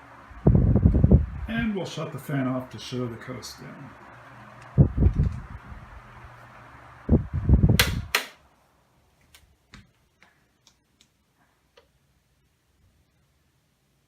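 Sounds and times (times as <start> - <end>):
table fan humming: 0.0 - 14.0
fan switch clicks: 4.6 - 5.6, 7.7 - 8.4.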